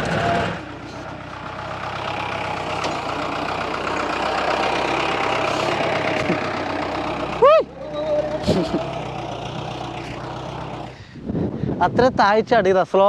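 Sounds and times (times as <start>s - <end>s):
jeep engine under load: 0.0s - 11.6s.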